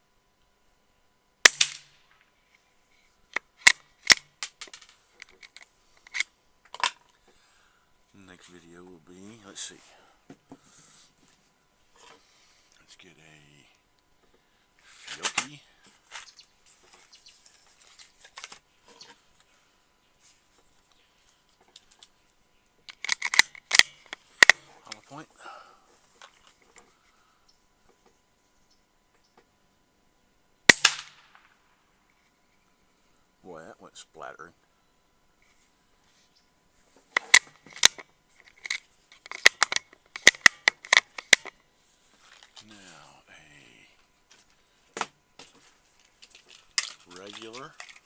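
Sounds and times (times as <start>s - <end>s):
suppressed rifle shot: 1.4s - 2.0s, 30.7s - 31.6s
rifle bolt metallic clicks: 3.4s - 4.8s, 22.9s - 25.0s, 37.2s - 41.5s
light handling clicks and rustles: 14.2s - 19.5s, 20.2s - 22.2s, 25.9s - 27.0s, 36.8s - 42.8s, 44.0s - 48.0s.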